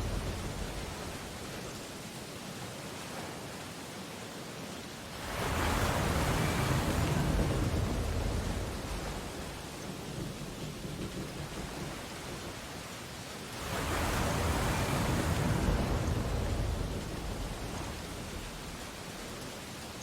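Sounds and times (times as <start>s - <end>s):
wave breaking: 0.0s - 1.8s, 5.2s - 10.0s, 13.5s - 19.5s
surf washing on beach: 0.0s - 20.0s.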